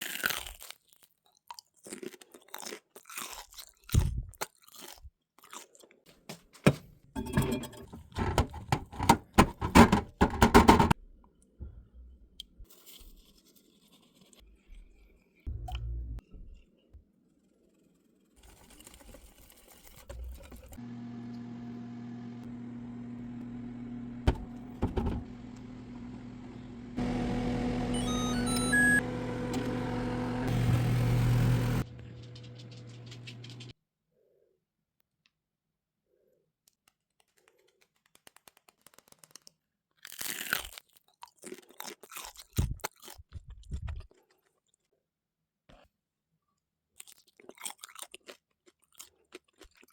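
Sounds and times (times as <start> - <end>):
microwave oven humming: 7.2 - 11.0, 20.8 - 33.7
short beeps: 27.9 - 29.0.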